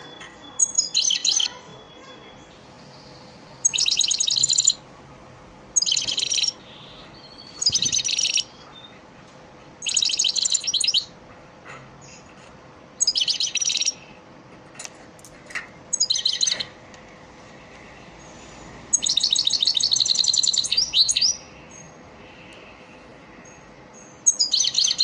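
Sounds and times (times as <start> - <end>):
goldfinch twittering: 3.6 - 4.8, 5.8 - 8.6, 13.0 - 14.0, 15.9 - 16.7, 18.9 - 21.4, 24.3 - 25.0.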